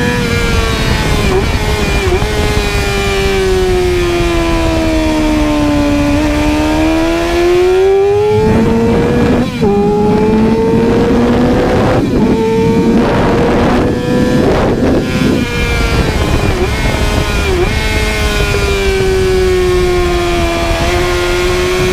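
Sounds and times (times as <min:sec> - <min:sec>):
motorcycle engine revving high: 0:00.0 - 0:21.9
wind noise: 0:00.0 - 0:21.9.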